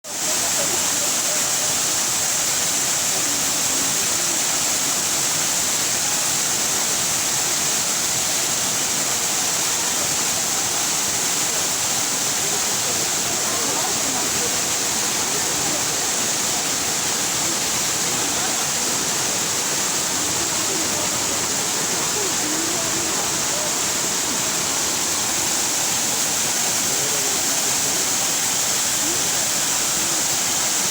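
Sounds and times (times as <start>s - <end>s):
waterfall rushing into pool: 0.1s - 30.9s.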